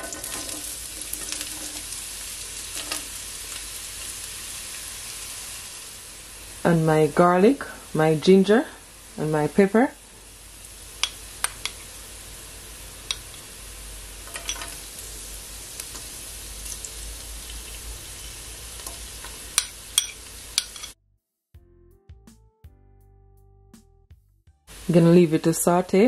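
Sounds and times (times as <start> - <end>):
sharp crackles of frying: 0.0 - 21.0, 24.7 - 26.0
vegetables sizzling in hot oil: 0.0 - 21.0, 24.7 - 26.0.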